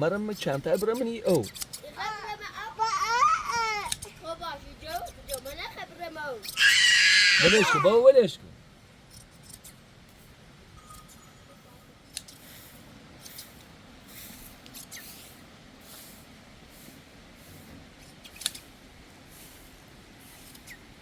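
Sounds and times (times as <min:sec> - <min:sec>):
shears snipping fleece: 0:00.5 - 0:02.3, 0:06.3 - 0:06.8, 0:13.2 - 0:16.2, 0:17.5 - 0:18.8, 0:19.5 - 0:20.8.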